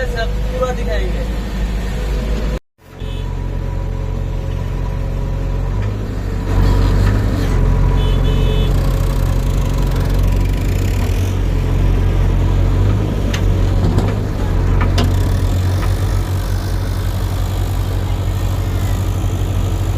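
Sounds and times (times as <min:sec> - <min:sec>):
diesel engine running: 0:00.0 - 0:19.9
rattling knocks: 0:13.3 - 0:17.2.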